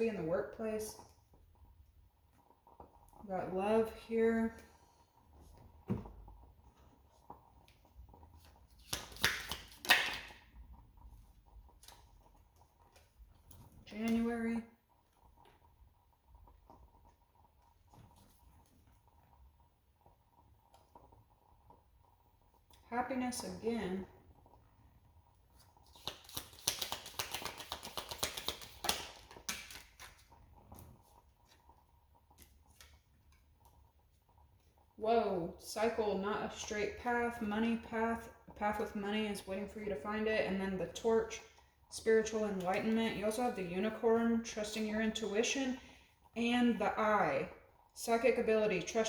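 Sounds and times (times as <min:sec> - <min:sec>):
deck of cards swishing: 0:25.8 - 0:30.2.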